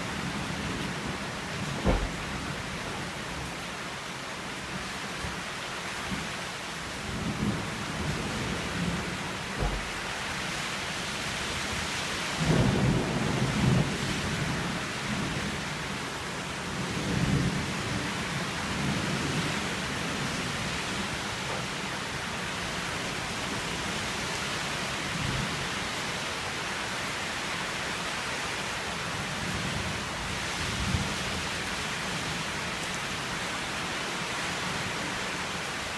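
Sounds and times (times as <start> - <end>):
steady rain: 0.0 - 35.9
thunder rumbling: 1.0 - 2.9.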